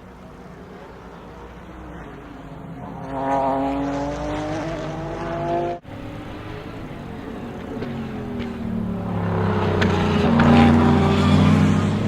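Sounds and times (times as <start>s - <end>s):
race car engine accelerating: 2.8s - 12.0s.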